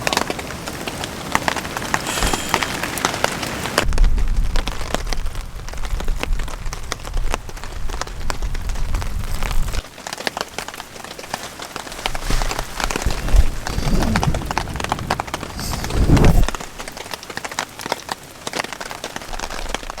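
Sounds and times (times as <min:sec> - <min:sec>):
heavy rain falling: 0:00.0 - 0:20.0
wind buffeting microphone: 0:03.8 - 0:09.8, 0:11.9 - 0:17.0.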